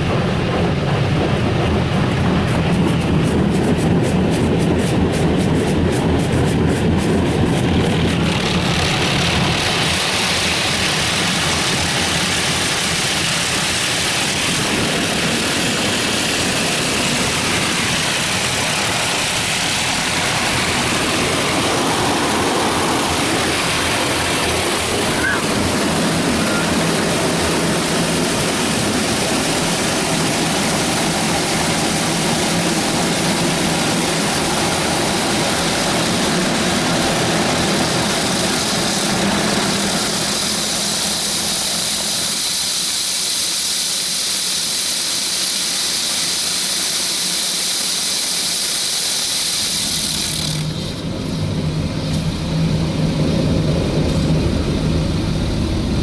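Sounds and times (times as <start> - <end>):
water spraying against car: 2.4 - 51.4
low machine hum: 49.9 - 56.0.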